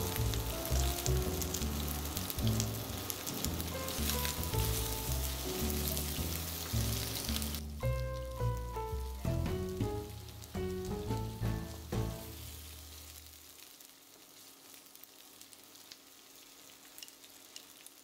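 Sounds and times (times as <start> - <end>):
background music: 0.0 - 12.4
food sizzling in oil: 0.0 - 18.0.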